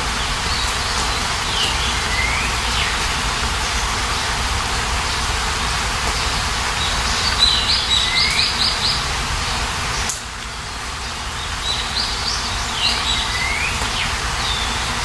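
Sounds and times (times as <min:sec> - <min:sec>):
rain falling: 0:00.0 - 0:15.0
bird calling and whistling: 0:01.5 - 0:03.0, 0:06.8 - 0:09.0, 0:11.6 - 0:15.0.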